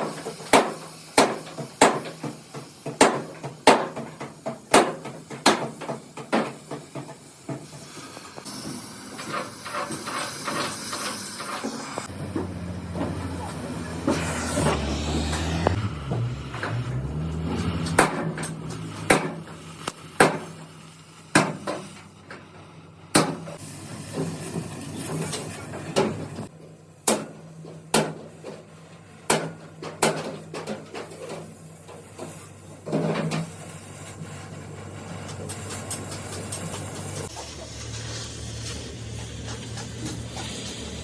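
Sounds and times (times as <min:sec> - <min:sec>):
hammer striking metal: 0:17.6 - 0:19.6.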